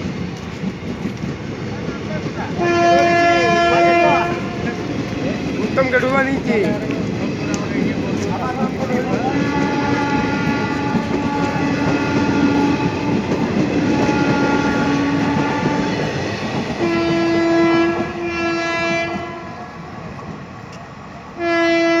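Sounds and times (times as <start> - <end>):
train coaches rumbling past: 0.0 - 22.0
train horn blasts: 2.6 - 5.0, 9.2 - 13.1, 13.8 - 16.1, 16.8 - 19.7, 21.4 - 22.0.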